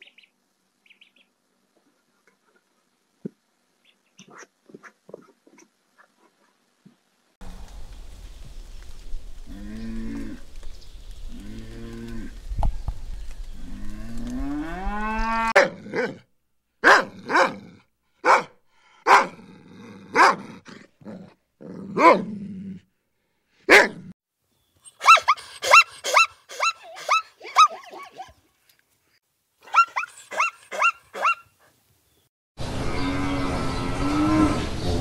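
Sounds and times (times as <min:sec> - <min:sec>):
cow mooing: 0:13.6 - 0:15.5
puppy barking: 0:15.6 - 0:16.2, 0:16.8 - 0:17.6, 0:18.2 - 0:19.4, 0:20.1 - 0:20.5, 0:22.0 - 0:22.2, 0:23.7 - 0:24.0, 0:25.0 - 0:28.4, 0:29.6 - 0:31.4.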